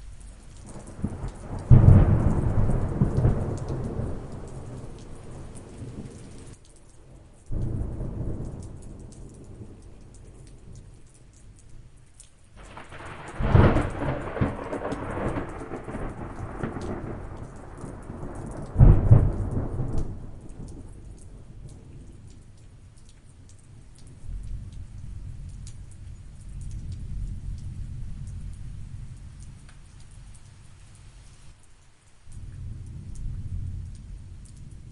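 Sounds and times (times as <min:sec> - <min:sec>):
rain pattering: 0:00.0 - 0:34.9
thunder rolling: 0:00.7 - 0:06.6, 0:12.6 - 0:22.2.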